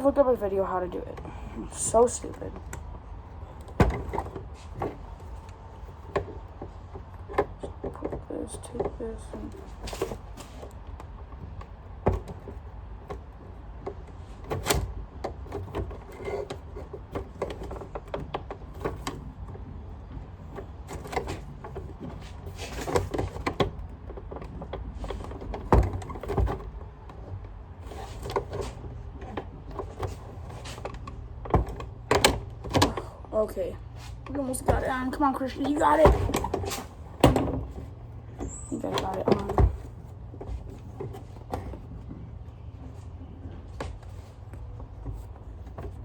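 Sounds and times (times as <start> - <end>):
plastic parts clicking and rattling: 0.9 - 33.1.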